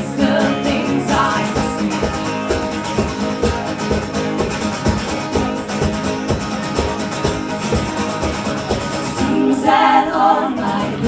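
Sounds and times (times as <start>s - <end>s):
steady drum beat: 0.0s - 11.0s
strummed guitar: 0.0s - 11.0s.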